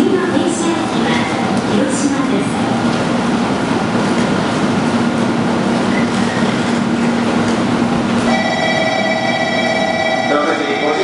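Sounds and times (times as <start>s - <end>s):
ringing of high tones: 8.3s - 11.0s.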